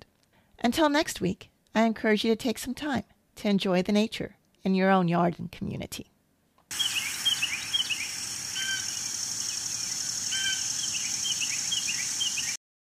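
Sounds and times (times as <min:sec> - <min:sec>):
birds chirping: 0:06.7 - 0:12.6.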